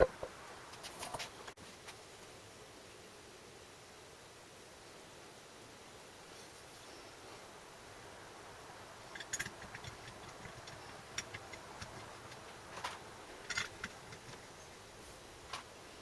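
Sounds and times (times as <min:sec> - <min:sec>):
small hard objects clicking: 0:09.1 - 0:14.4.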